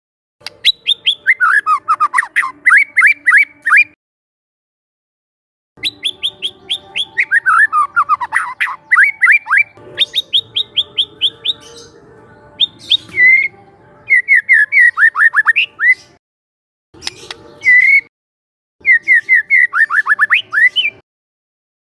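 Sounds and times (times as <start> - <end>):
bird singing whistled phrases: 0.6 - 3.9, 5.8 - 11.9, 12.6 - 13.5, 14.1 - 16.2, 17.0 - 18.1, 18.8 - 21.0.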